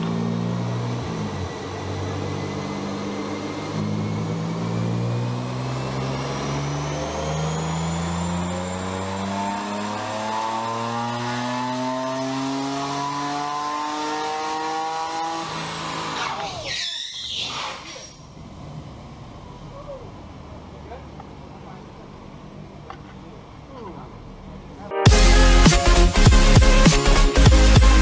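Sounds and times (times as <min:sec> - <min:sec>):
car engine revving under load: 0:00.0 - 0:16.6.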